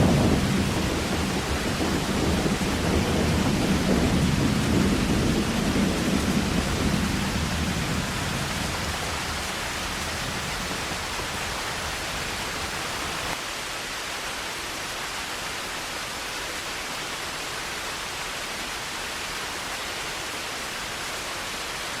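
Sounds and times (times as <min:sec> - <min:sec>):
low rumble of thunder: 0:00.0 - 0:13.4
heavy rain falling: 0:00.0 - 0:22.0.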